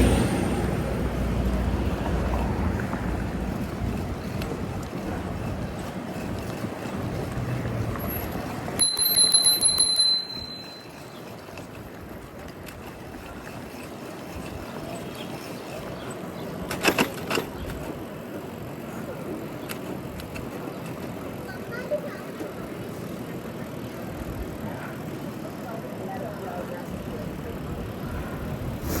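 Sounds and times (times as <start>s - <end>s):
street noise: 0.0s - 29.0s
wind: 0.0s - 29.0s
bicycle bell ringing: 8.0s - 11.4s.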